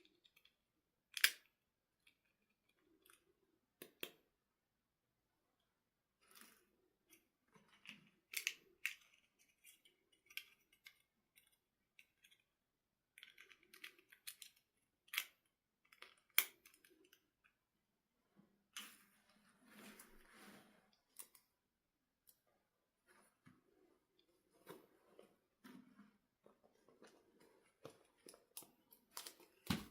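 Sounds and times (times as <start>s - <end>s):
plastic toy parts clicking: 0.1s - 1.5s, 7.8s - 12.5s, 13.1s - 17.2s.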